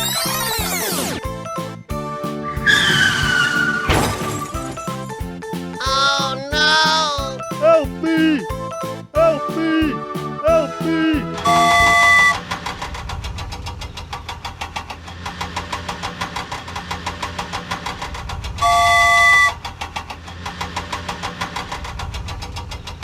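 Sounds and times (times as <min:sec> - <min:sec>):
cartoon engine putter: 0:03.8 - 0:07.8
multi-tone horn blast: 0:09.4 - 0:12.5, 0:18.6 - 0:19.6.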